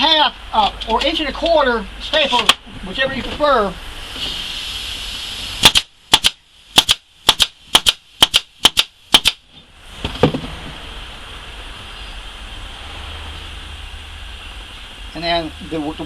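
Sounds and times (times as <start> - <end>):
steady hiss: 0.0 - 16.0
staple gun firing: 5.6 - 9.4
dull thump: 10.0 - 10.8.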